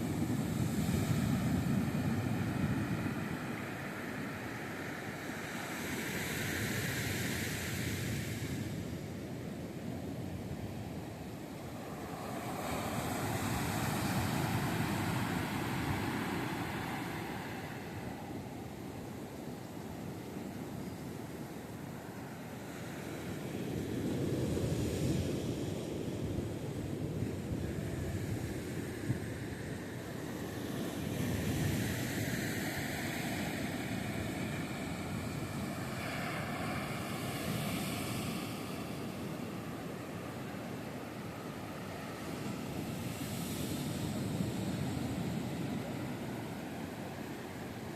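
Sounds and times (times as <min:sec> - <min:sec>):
wave breaking on beach: 0:11.6 - 0:18.7, 0:27.7 - 0:47.9.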